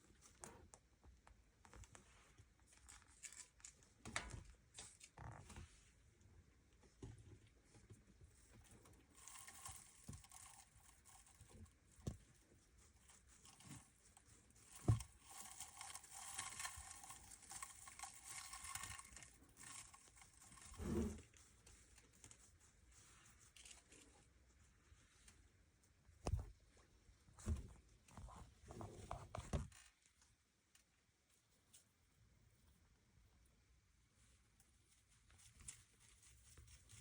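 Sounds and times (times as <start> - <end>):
hamster crunching popcorn: 8.5 - 22.2.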